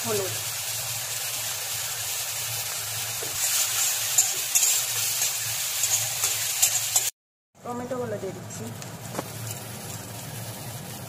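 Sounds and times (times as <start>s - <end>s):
onions sizzling in hot oil: 0.0s - 7.1s, 8.0s - 11.0s
metal spatula scraping pan: 3.4s - 7.1s.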